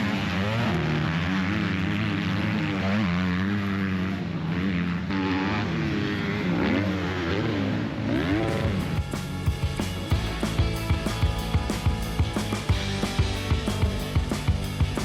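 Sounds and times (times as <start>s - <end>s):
dirt bike engines revving: 0.0s - 15.0s
background music with beat: 8.6s - 15.0s.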